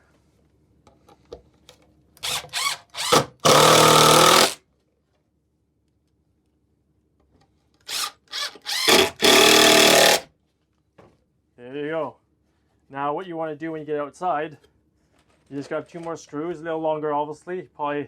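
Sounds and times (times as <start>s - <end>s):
power drill driving screws: 2.2s - 4.6s, 7.9s - 10.2s.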